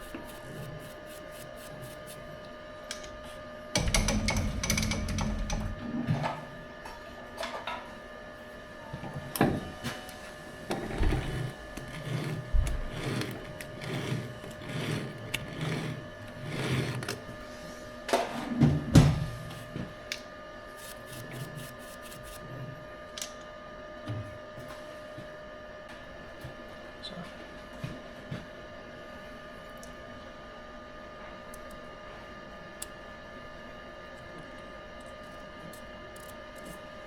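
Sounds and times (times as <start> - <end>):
machine tool whining: 10.8 - 17.3.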